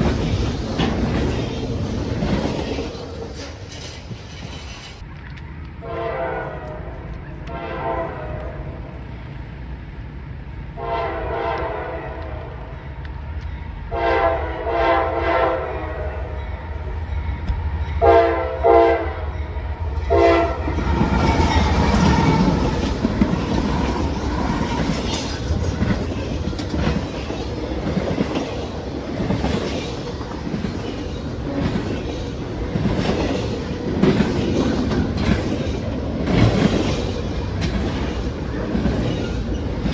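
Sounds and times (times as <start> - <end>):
wheels clicking over rail joints: 0.0 - 5.8, 19.8 - 39.9
locomotive horn blasts: 5.8 - 9.0, 10.8 - 12.8, 13.9 - 16.4, 18.0 - 22.7.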